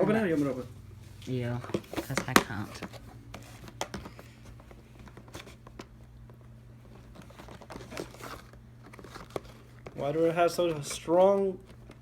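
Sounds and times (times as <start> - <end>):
low steady hum: 0.0 - 12.0
packaging crinkling: 6.8 - 12.0.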